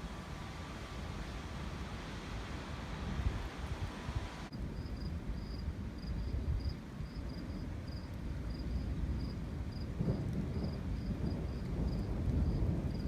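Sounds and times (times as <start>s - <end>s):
cricket chirping: 4.5s - 13.0s.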